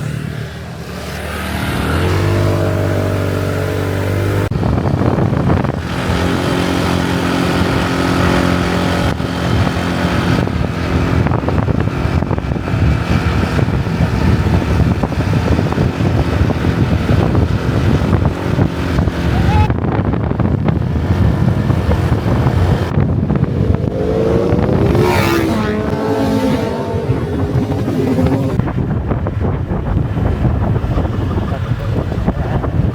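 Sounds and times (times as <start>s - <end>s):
second engine passing: 0.0s - 19.7s, 20.4s - 28.8s
motorbike engine running: 0.0s - 32.9s
wind on microphone: 0.0s - 32.9s.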